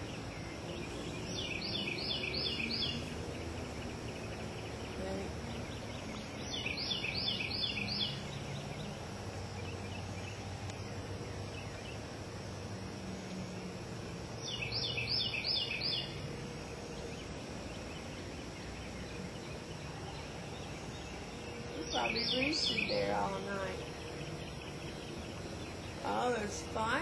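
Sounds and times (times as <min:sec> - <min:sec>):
bird singing bright notes: 0:00.0 - 0:12.1, 0:14.3 - 0:27.0
outdoor background hum: 0:00.0 - 0:27.0.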